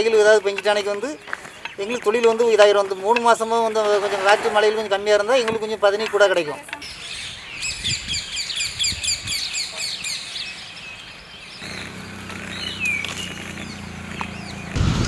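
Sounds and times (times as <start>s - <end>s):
birds chirping: 0.0s - 15.0s
downward-slurred bird call: 11.6s - 14.8s.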